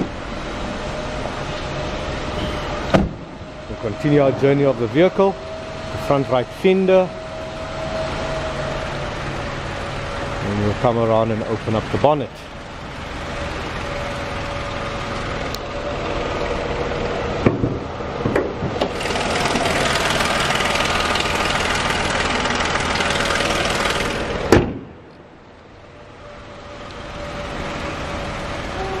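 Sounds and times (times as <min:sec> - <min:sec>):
car engine idling: 0:00.0 - 0:29.0
car bonnet slamming shut: 0:02.4 - 0:03.4, 0:24.5 - 0:25.0.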